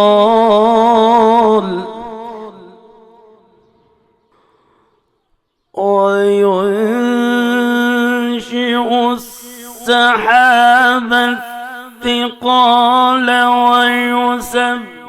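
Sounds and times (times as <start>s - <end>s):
man chanting melodically: 0.0s - 2.9s, 5.8s - 15.0s.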